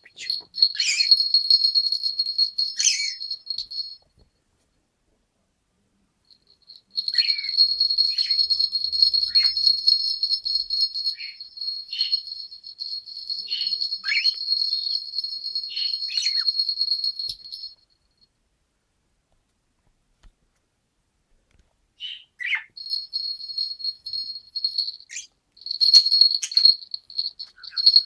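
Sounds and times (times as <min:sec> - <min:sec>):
small bird trilling: 0:00.0 - 0:03.5, 0:07.0 - 0:17.3.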